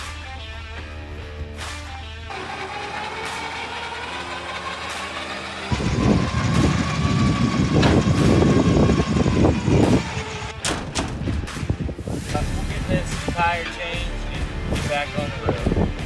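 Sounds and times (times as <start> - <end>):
truck whine: 0.0 - 11.7
truck engine and road rumble: 0.0 - 16.0.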